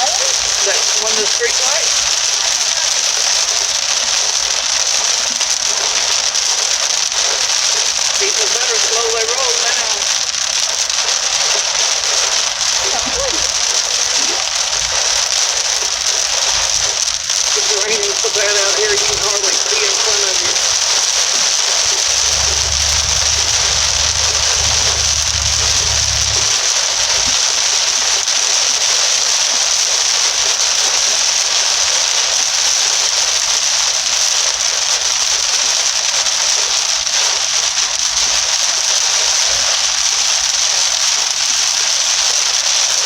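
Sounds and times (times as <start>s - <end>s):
heavy rain drumming on car roof: 0.0s - 43.0s
low hum: 21.6s - 27.7s.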